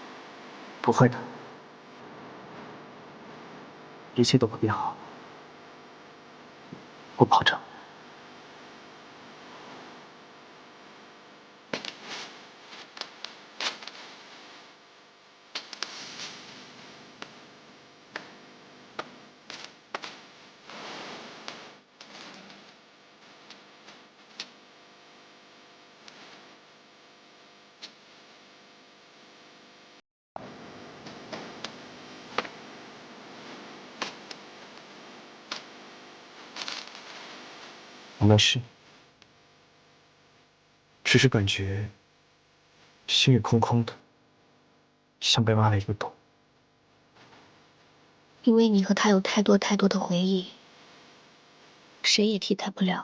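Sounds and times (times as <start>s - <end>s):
faint steady hiss: 0.0s - 44.5s
background hiss: 11.7s - 14.7s, 15.5s - 17.4s.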